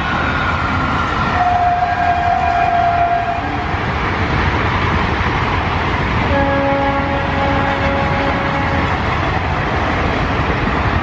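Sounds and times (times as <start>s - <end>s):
train rumbling past: 0.0s - 11.0s
train horn: 1.3s - 3.7s, 6.3s - 9.0s.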